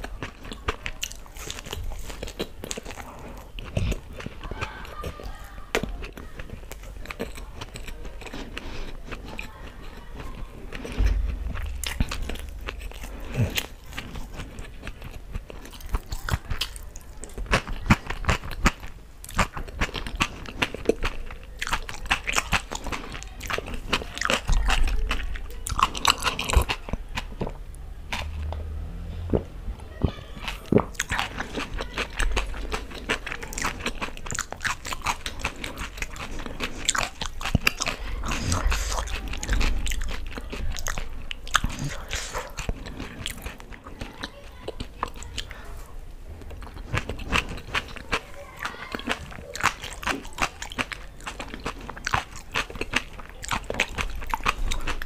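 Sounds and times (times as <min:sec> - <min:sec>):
person chewing and crunching: 0:00.0 - 0:55.0
dull low thumps: 0:10.9 - 0:14.0.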